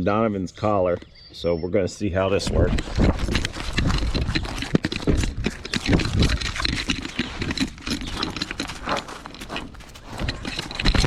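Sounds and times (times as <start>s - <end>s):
camera jostling thumps and rubbing: 2.6s - 11.0s.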